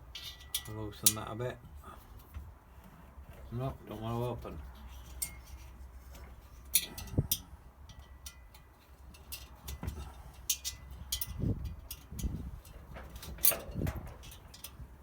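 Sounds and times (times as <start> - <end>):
small metal parts clicking: 0.0 - 1.2, 10.4 - 14.8.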